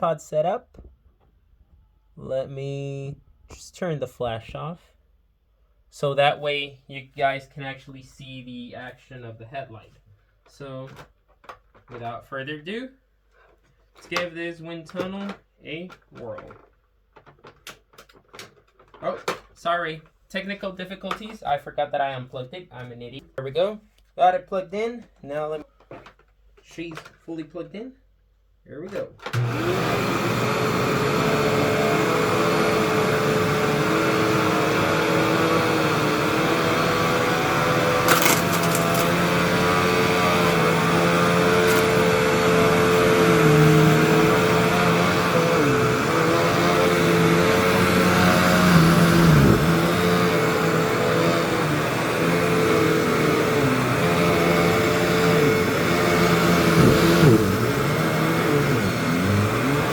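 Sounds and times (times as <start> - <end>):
vacuum cleaner running: 29.4 - 59.9.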